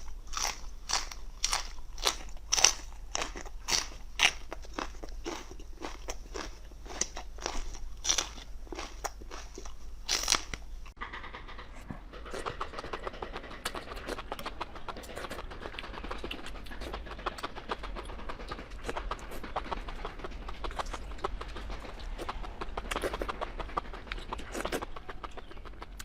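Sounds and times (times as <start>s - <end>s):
person chewing crunchy food: 0.0s - 11.0s, 12.1s - 26.0s.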